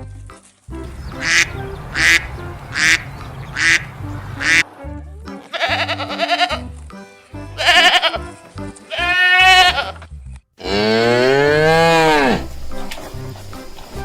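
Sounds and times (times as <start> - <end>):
background music with bass line: 0.0 - 14.0
duck quacking: 0.8 - 4.8.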